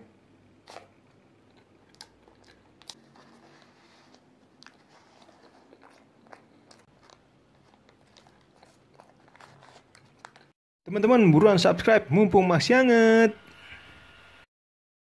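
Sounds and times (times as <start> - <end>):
crunching pastry: 0.6 - 10.6.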